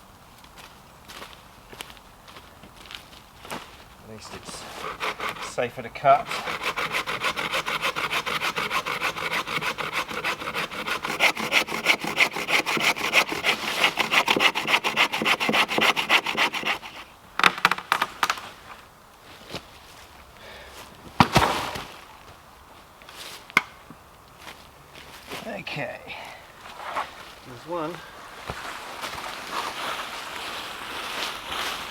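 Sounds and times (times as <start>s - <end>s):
hand saw cutting wood: 4.2s - 17.1s
wood cracking and knocking: 17.4s - 18.4s.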